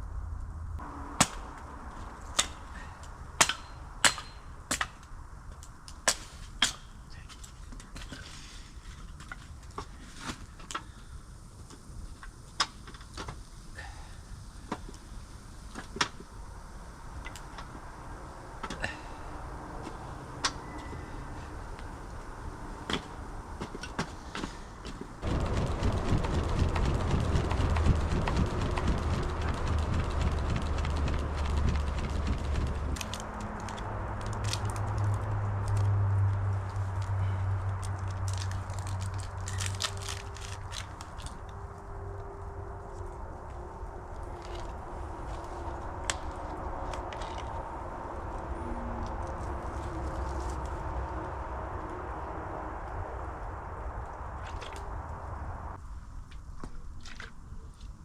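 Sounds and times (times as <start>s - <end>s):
steady rushing noise: 13.4s - 56.2s.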